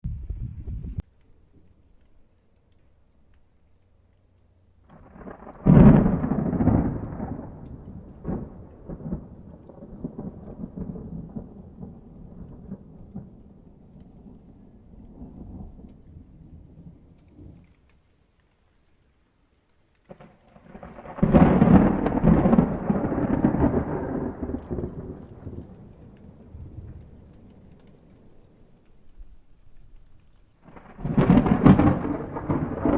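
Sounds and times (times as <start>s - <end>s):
thunder clap and rumble: 0.0s - 1.0s, 4.9s - 17.8s, 20.1s - 30.0s, 30.6s - 32.9s.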